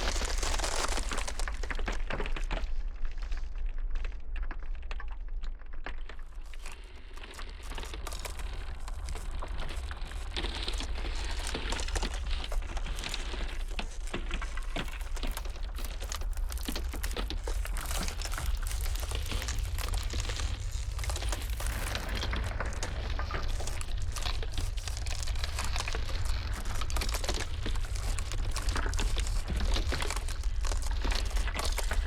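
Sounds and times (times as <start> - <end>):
ice crackling and popping: 0.0 - 32.0
blizzard wind rumble: 7.1 - 32.0.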